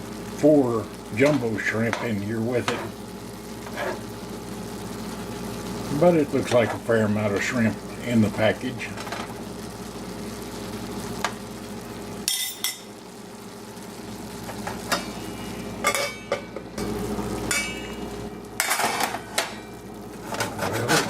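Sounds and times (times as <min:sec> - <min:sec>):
food cooking in a skillet: 0:00.0 - 0:21.0
utensil scraping a pan: 0:03.6 - 0:04.1, 0:20.1 - 0:21.0.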